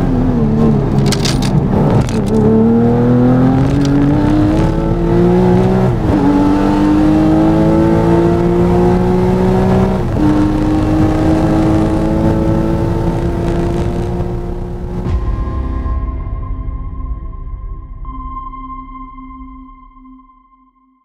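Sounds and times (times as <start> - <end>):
car engine accelerating with upshifts: 0.0 - 15.1.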